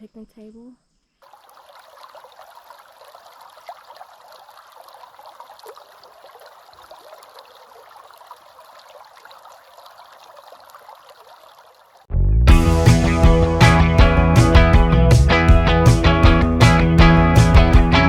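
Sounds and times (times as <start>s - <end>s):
water trickling and splashing: 1.2s - 12.1s.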